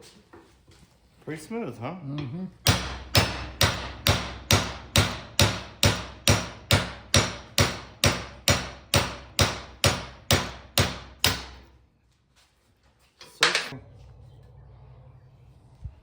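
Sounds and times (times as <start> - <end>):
hammer striking metal: 2.2 - 11.8.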